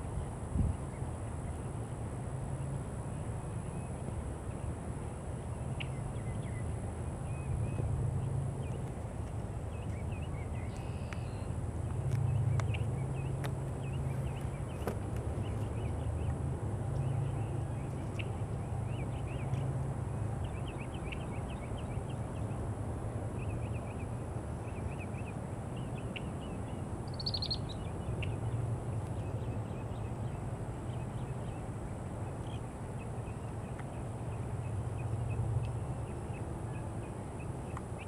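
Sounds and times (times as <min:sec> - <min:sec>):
blackbird chirping: 0:24.7 - 0:28.4.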